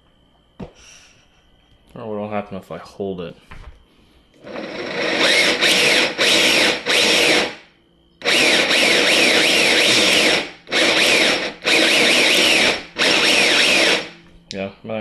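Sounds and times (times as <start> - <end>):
electric motor whining: 4.4 - 7.6, 8.2 - 14.2.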